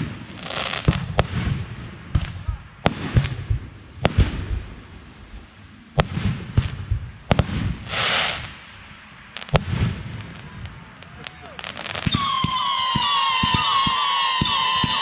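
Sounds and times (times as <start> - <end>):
firework hissing rush: 0.0 - 10.4, 11.0 - 15.0
fireworks bangs: 0.0 - 15.0
low rumbling: 0.9 - 11.4.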